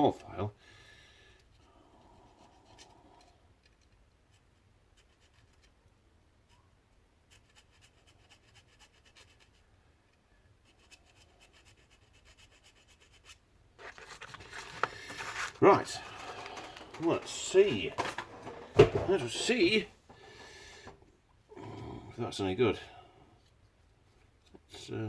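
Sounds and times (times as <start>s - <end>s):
hand file rasping: 10.6s - 14.0s.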